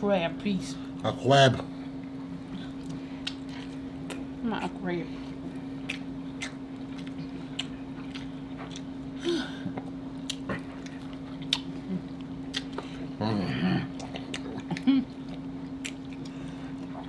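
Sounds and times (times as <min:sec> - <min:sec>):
steady low hum: 0:00.0 - 0:17.0
people chewing and biting: 0:05.4 - 0:17.0
wet mouth clicks: 0:05.8 - 0:08.9.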